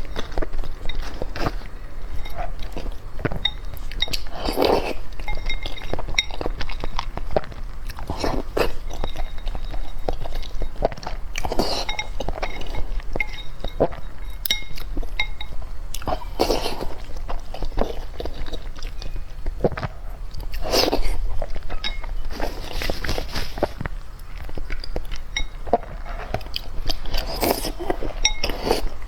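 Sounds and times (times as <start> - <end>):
chewing and crunching seafood: 0.0 - 29.0.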